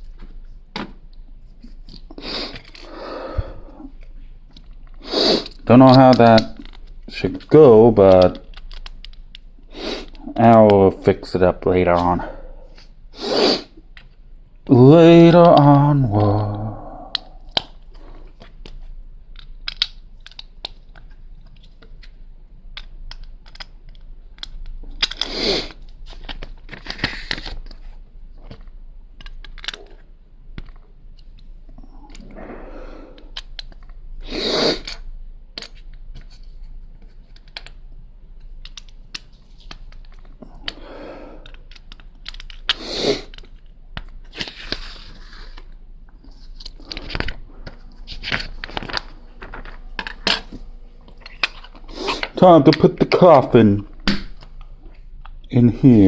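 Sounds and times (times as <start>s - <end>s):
plastic pieces snapping together: 4.5s - 9.5s, 15.4s - 27.8s, 28.4s - 31.5s, 34.8s - 36.4s, 37.2s - 44.9s
plastic rustling and rattling: 23.1s - 31.6s, 41.4s - 53.2s.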